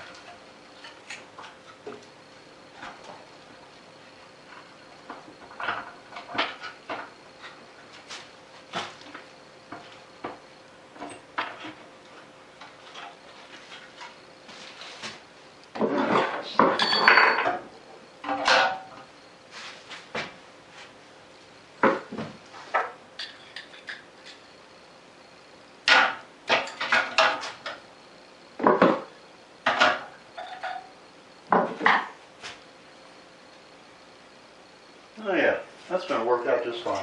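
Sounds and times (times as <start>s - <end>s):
metal hardware clinking: 16.7s - 17.6s.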